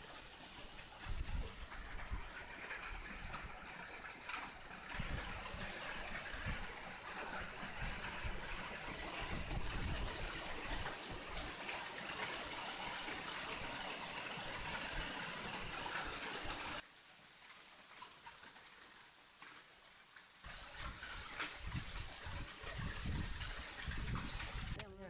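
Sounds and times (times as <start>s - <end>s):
wind rumbling on microphone: 0.0s - 11.5s, 20.5s - 25.0s
heavy rain downpour: 0.0s - 24.8s.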